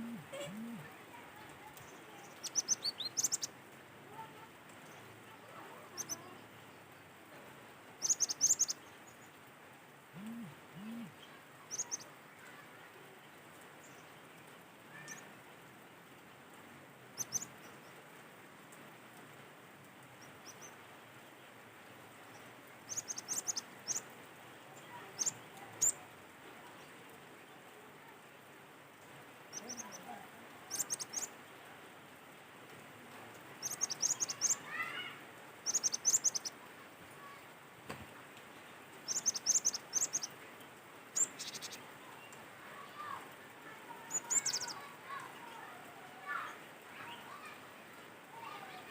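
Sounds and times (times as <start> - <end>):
faint background noise: 0.0 - 48.9
faint outdoor hiss: 0.0 - 48.9
bird chirping high-pitched: 44.1 - 44.8.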